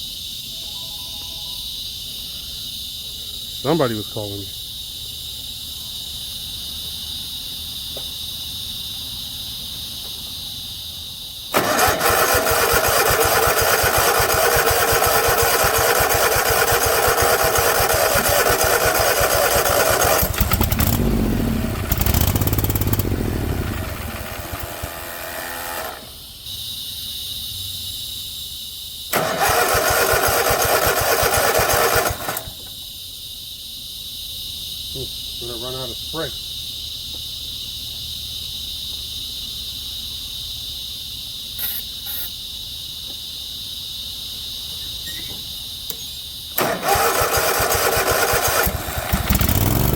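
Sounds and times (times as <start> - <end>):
crickets chirping: 0.0 - 49.9
small mower engine running: 11.6 - 26.2, 29.1 - 32.6, 46.6 - 49.9.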